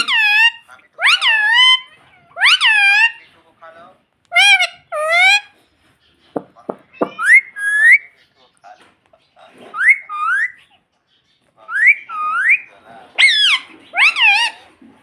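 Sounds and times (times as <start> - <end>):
parrot whistled calls: 0.0 - 3.2, 7.2 - 8.1, 9.7 - 10.6, 11.7 - 14.6.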